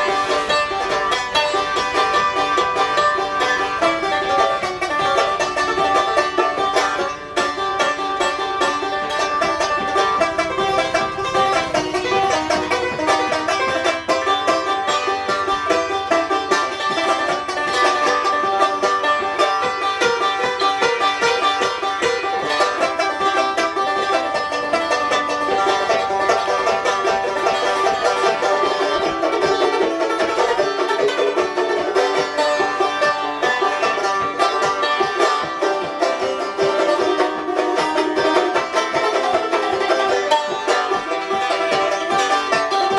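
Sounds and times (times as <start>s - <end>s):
banjo picking: 0.0s - 42.9s.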